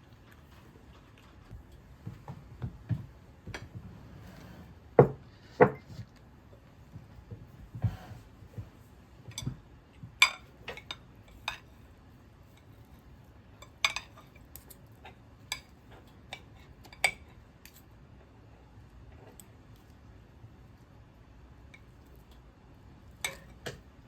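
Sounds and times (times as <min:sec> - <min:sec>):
kitchenware clinking: 0:10.2 - 0:11.7, 0:23.2 - 0:23.8.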